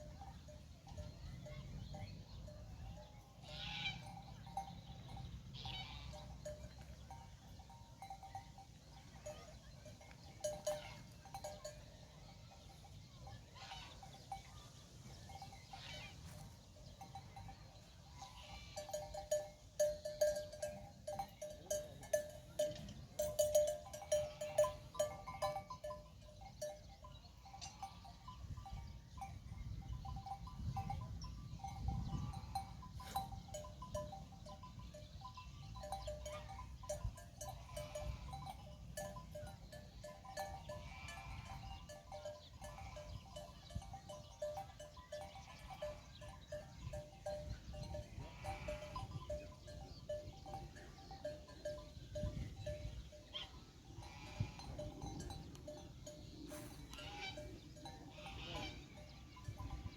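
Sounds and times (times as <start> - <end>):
bells clanking: 0.0 - 59.9
animals bleating: 48.2 - 49.3, 54.0 - 55.0, 58.1 - 59.0.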